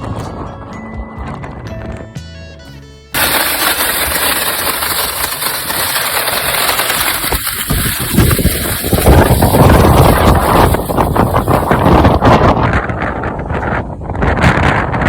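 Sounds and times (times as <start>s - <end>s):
storm wind on microphone: 3.8s - 15.0s.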